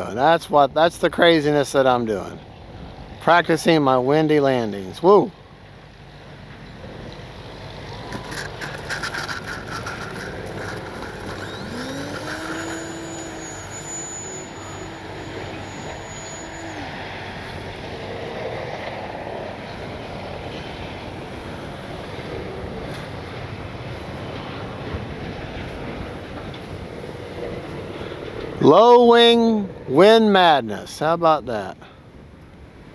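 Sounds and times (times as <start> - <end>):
model plane motor whining: 7.4 - 25.4.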